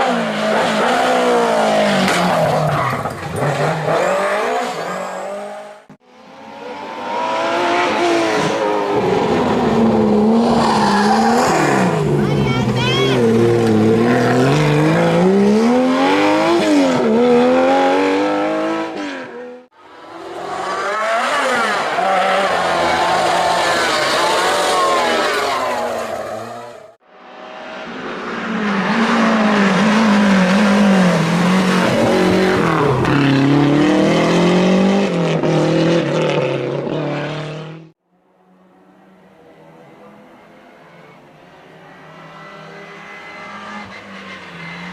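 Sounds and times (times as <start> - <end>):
rally car engines revving: 0.0 - 38.0, 38.7 - 44.9.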